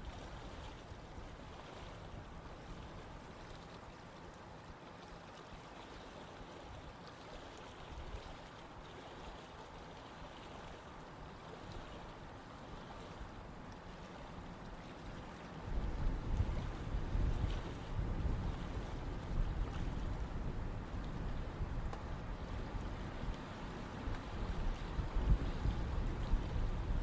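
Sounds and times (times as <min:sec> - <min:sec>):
small water splashes: 0:00.1 - 0:20.2.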